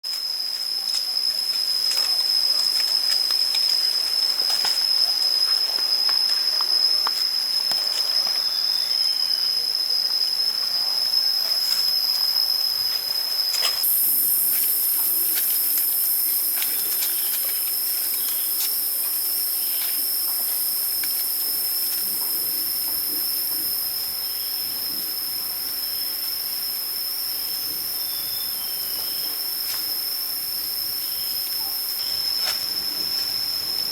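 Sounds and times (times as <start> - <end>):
steady high-pitched whine: 0.1 - 31.4
hiss: 9.5 - 33.9.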